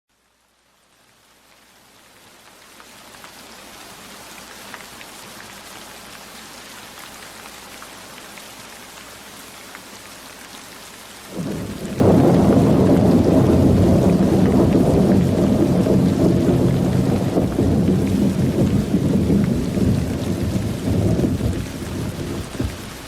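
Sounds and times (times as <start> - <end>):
steady rainfall: 0.1 - 23.0
thunder rumble: 11.3 - 23.0.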